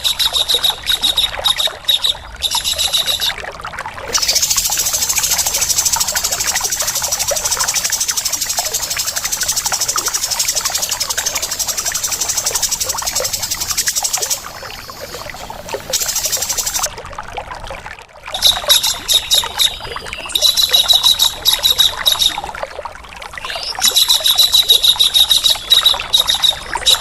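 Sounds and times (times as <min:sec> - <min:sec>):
rapid rattling birdsong: 0:04.1 - 0:16.9, 0:18.4 - 0:22.4, 0:23.4 - 0:27.0.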